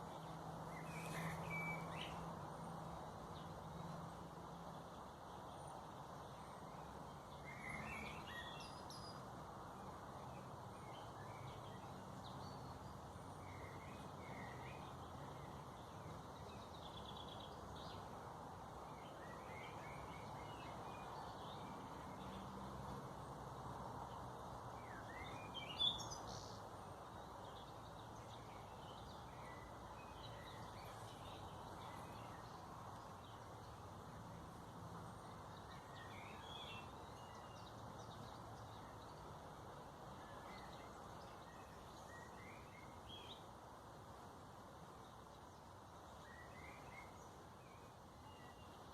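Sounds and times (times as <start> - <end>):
songbirds chirping: 0.0 - 48.9
steady background hiss: 0.0 - 48.9.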